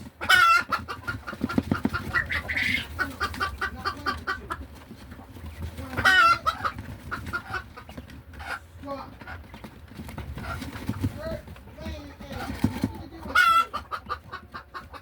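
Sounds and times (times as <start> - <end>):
hen clucking: 0.0 - 15.0
hen squawking: 0.2 - 4.6.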